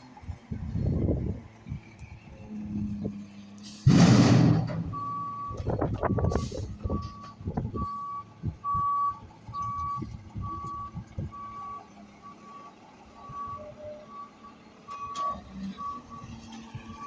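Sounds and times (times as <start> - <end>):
truck clunks: 1.7 - 13.8, 14.4 - 17.0
reversing alarm beeping: 3.8 - 17.0.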